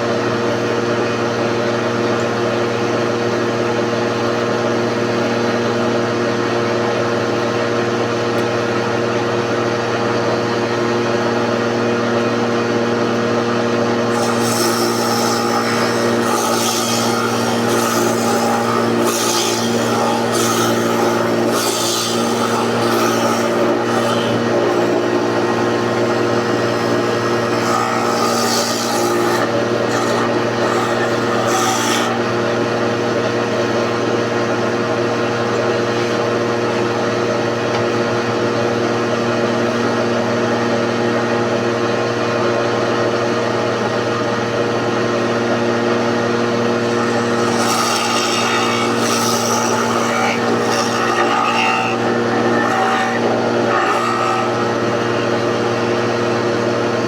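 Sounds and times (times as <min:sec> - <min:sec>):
electric hand planer running: 0:09.7 - 0:37.9, 0:43.1 - 0:57.0
planer blade cutting wood: 0:10.2 - 0:36.7, 0:43.7 - 0:57.0.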